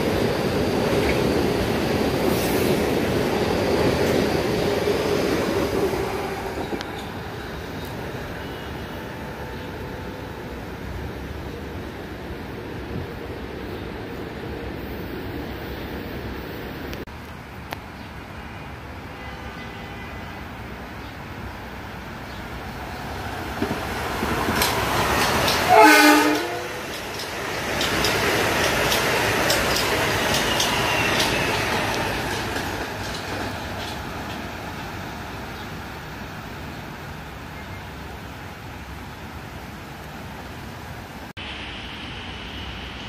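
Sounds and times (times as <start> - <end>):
train horn blast: 19.1 - 20.4, 25.7 - 26.8
train wheels clattering: 23.6 - 34.5.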